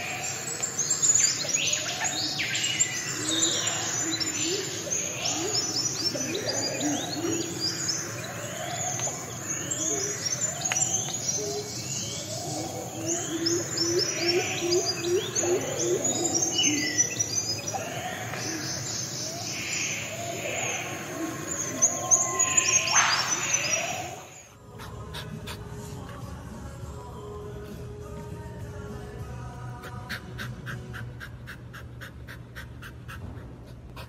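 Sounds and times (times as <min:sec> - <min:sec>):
birds chirping and calling: 0:00.0 - 0:26.2.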